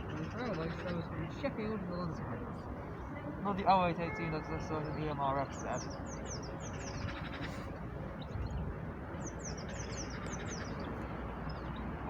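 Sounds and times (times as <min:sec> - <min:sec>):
small songbird chirping: 0:04.1 - 0:07.5, 0:08.2 - 0:12.0.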